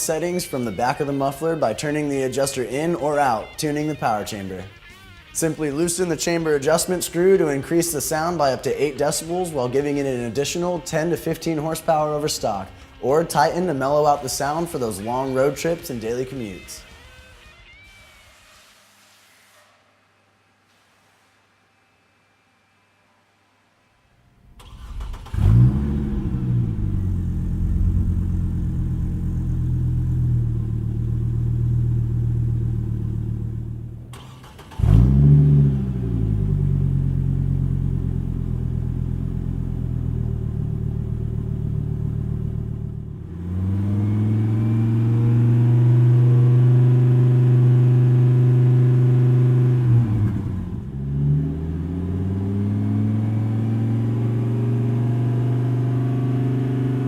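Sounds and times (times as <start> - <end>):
pickup engine revving and idling: 24.8 - 57.0.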